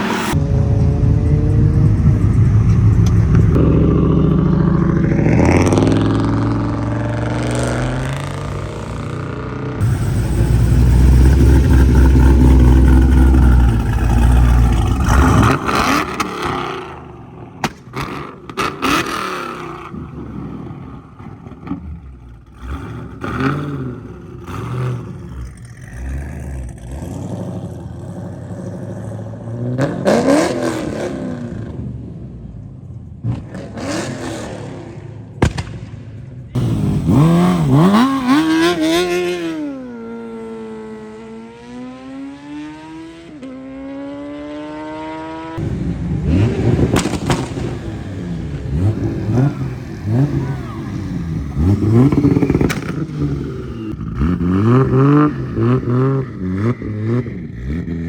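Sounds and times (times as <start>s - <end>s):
car engines revving: 0.0s - 58.0s
deep exhaust rumble: 0.4s - 15.6s.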